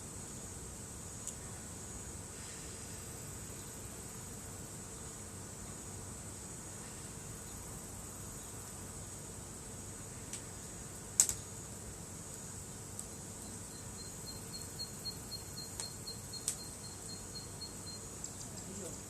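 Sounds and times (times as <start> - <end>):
high insect drone: 0.0 - 19.0
campfire popping and snapping: 10.3 - 10.5, 11.1 - 11.4, 12.3 - 13.2, 15.7 - 16.7
rapid high chirps: 13.4 - 19.0.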